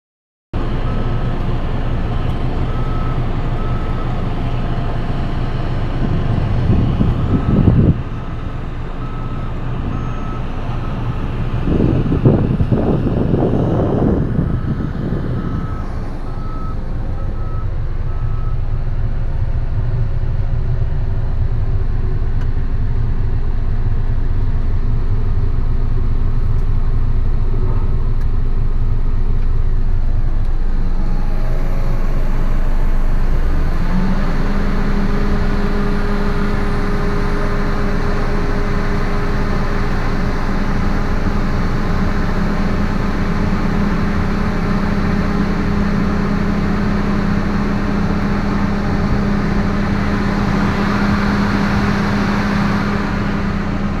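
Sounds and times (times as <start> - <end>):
steady hum: 0.6 - 54.0
vehicle engine rumble: 0.6 - 54.0
short beeps: 14.4 - 18.6.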